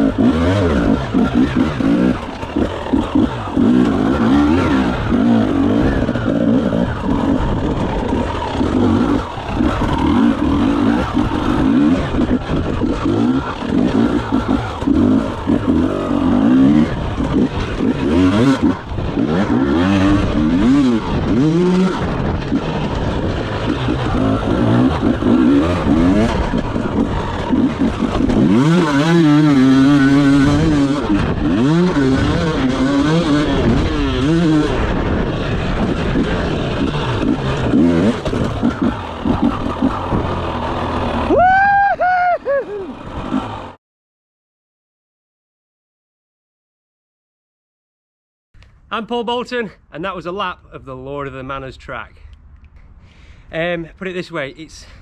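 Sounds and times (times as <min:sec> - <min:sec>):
motorcycle engine revving hard: 0:00.0 - 0:41.8, 0:42.8 - 0:43.8.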